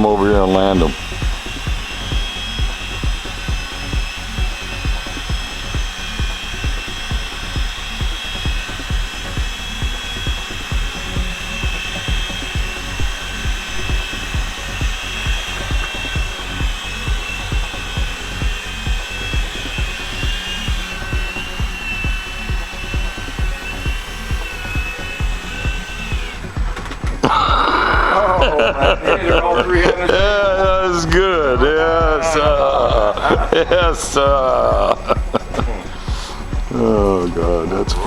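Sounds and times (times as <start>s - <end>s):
music with steady beat: 0.0s - 38.0s
small electric motors whining: 0.0s - 38.0s.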